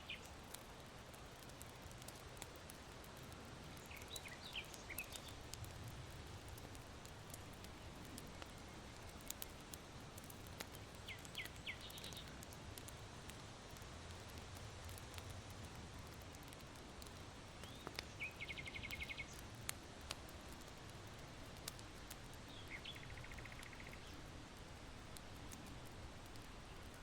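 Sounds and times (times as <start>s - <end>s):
songbirds chirping: 0.0s - 0.4s, 3.3s - 5.7s, 6.3s - 12.5s, 17.5s - 19.6s, 22.0s - 24.3s, 26.3s - 27.0s
charcoal embers crackling: 0.0s - 27.0s.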